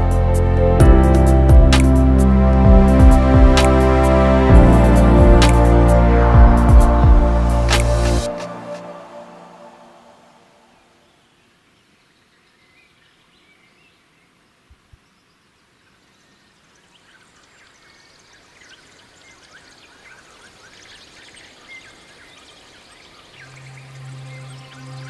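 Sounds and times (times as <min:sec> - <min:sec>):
soft low thumps: 0:00.8 - 0:02.0, 0:02.6 - 0:03.7, 0:04.5 - 0:05.6, 0:06.2 - 0:07.4
small birds chirping: 0:10.8 - 0:25.0.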